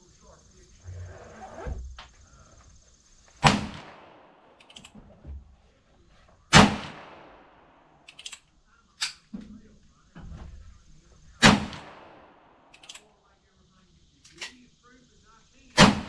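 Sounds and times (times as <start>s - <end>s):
gunshots with echo: 3.4s - 4.6s, 6.5s - 7.8s, 11.4s - 12.7s, 15.8s - 16.0s.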